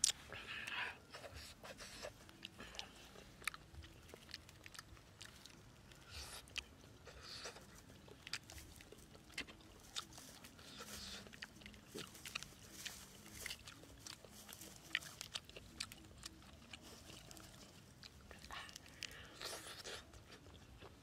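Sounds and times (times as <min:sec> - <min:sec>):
person chewing: 0:00.0 - 0:21.0.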